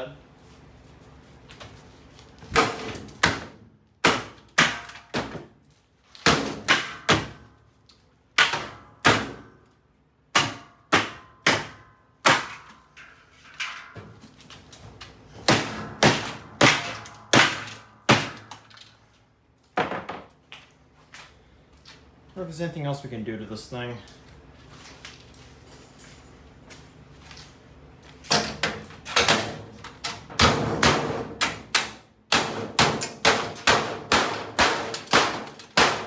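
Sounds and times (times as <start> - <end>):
tool smashing washing machine: 2.5 - 5.6, 6.2 - 7.5, 8.4 - 9.5, 10.3 - 12.8, 15.3 - 18.8, 28.3 - 36.0.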